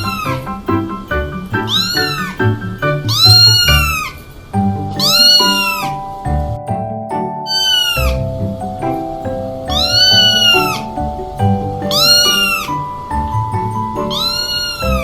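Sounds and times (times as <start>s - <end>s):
background music: 0.0s - 15.0s
cat meowing: 5.0s - 5.9s, 9.7s - 10.8s, 11.9s - 12.8s.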